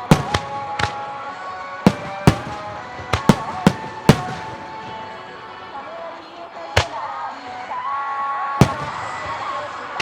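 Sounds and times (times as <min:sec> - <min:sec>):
firework shells bursting: 0:00.0 - 0:01.3, 0:01.9 - 0:05.4, 0:08.6 - 0:09.6.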